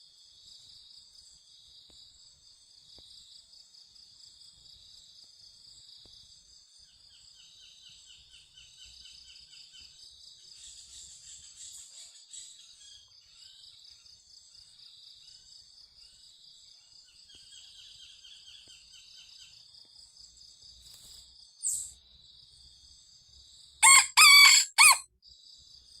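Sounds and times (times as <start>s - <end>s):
crickets trilling: 20.3s - 25.9s
rooster crowing: 23.8s - 25.0s.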